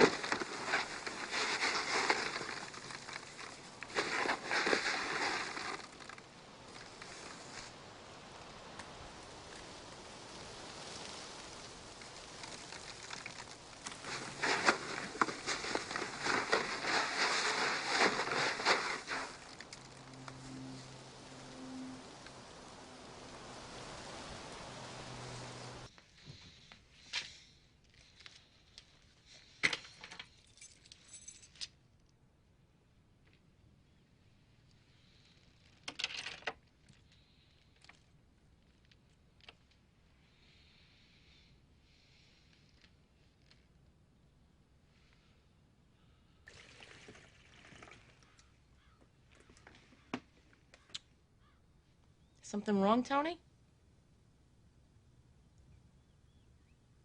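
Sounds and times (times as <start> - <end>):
steady rain pattering: 0.0 - 26.3, 46.5 - 51.6.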